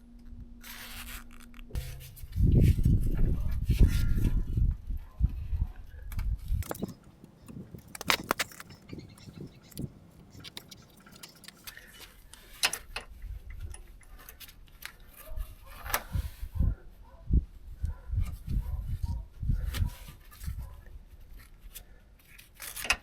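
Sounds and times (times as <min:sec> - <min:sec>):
handling and rustling noise: 0:00.6 - 0:16.7
metal tools clinking: 0:06.6 - 0:13.0.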